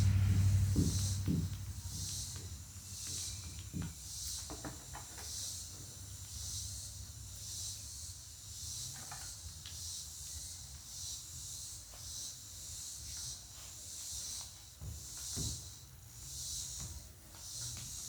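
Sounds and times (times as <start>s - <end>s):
low steady hum: 0.0s - 4.0s
insects calling in raspy pulses: 1.8s - 16.8s.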